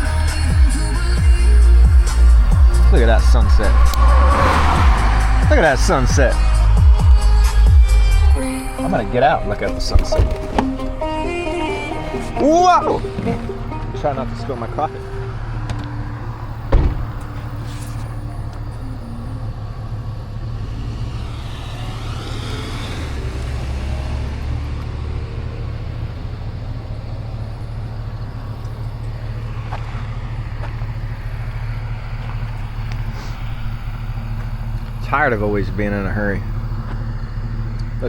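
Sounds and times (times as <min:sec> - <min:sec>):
low engine hum: 0:00.0 - 0:38.0
vehicle passing by: 0:01.6 - 0:08.4, 0:13.7 - 0:27.4.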